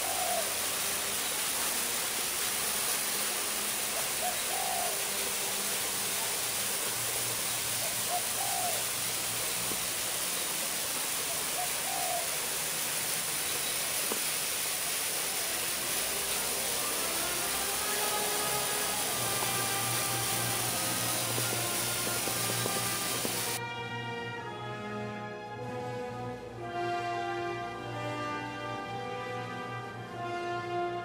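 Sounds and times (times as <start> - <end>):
bird hooting call: 0.0 - 0.6, 4.0 - 5.2, 7.8 - 9.0, 11.2 - 12.4
steady high hiss: 0.0 - 23.6.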